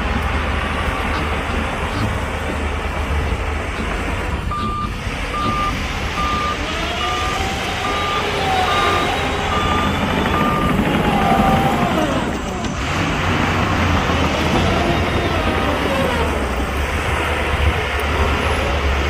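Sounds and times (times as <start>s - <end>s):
heavy diesel machine rumbling: 0.0s - 19.0s
reversing alarm beeping: 4.4s - 12.3s.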